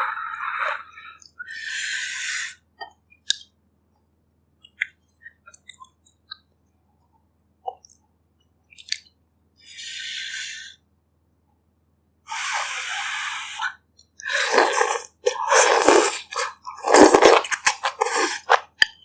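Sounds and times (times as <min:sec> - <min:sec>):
slurping soup: 0:12.3 - 0:18.8
wet chewing: 0:14.2 - 0:19.0.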